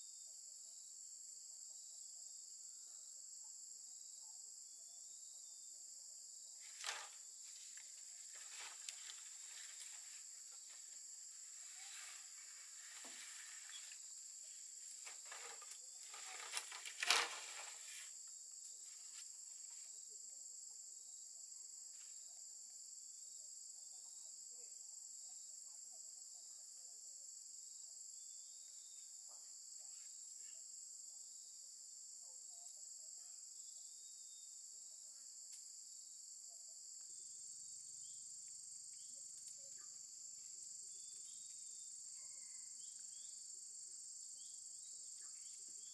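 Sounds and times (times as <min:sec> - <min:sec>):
insects chorus: 0:00.0 - 0:45.9
light rustling and clicks: 0:06.6 - 0:10.0, 0:14.9 - 0:18.1.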